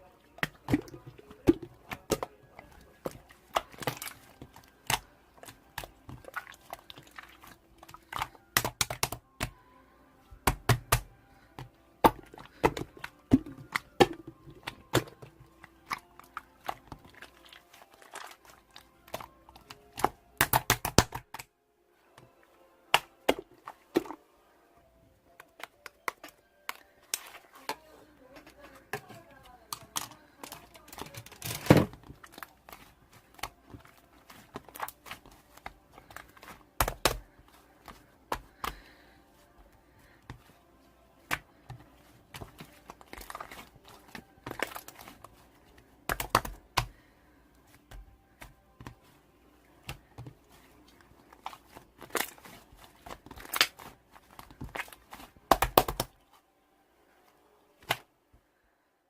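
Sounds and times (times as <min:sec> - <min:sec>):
crinkling rustles: 0:25.4 - 0:56.5.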